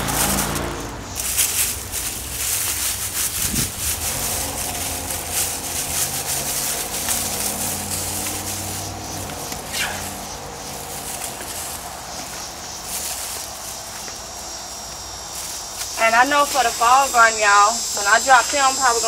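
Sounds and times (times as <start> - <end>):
low engine hum: 0.0 - 17.1
hands digging through soil: 0.0 - 17.3.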